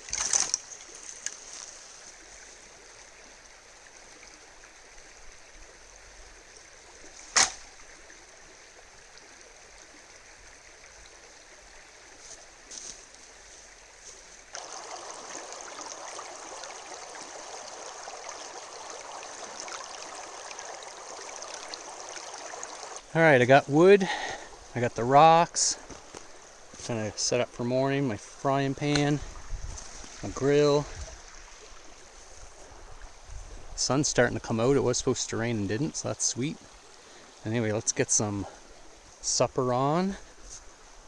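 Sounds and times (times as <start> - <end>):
river water rushing: 12.0 - 33.2.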